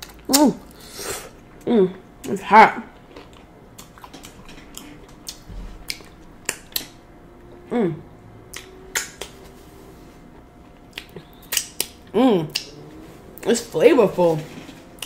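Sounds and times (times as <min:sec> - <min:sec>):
chewing: 0:02.9 - 0:07.0, 0:10.4 - 0:13.5
person humming: 0:07.6 - 0:08.2, 0:12.1 - 0:13.0
wet lip-smacking clicks: 0:08.5 - 0:09.4, 0:10.9 - 0:12.7.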